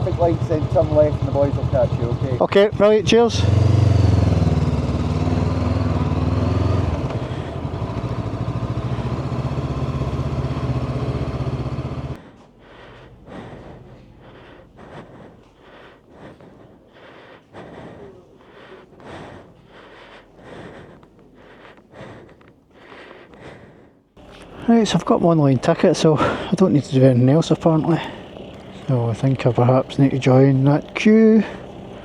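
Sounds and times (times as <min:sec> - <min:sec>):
motorcycle engine running: 0:00.0 - 0:12.2, 0:24.2 - 0:32.0.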